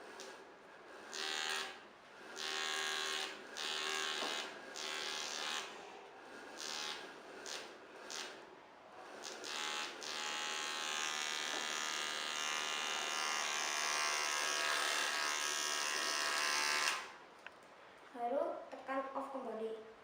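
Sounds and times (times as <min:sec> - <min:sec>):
small motor whirring: 0:01.0 - 0:08.4, 0:09.0 - 0:17.2.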